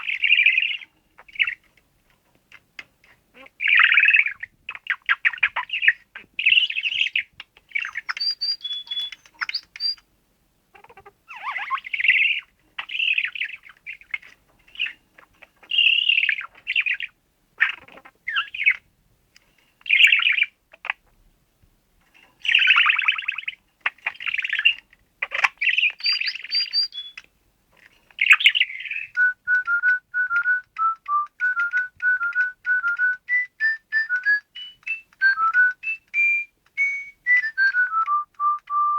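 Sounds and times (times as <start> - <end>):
electronic whistled bird song: 5.8 - 10.0, 15.7 - 17.1, 25.6 - 27.2, 28.2 - 38.9
budgerigar chattering: 7.8 - 10.0, 22.5 - 27.2.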